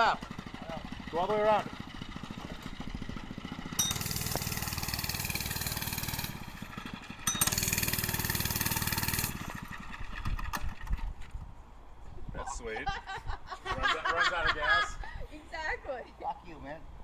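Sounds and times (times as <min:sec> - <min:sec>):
mini bike engine running hard: 0:00.0 - 0:11.1.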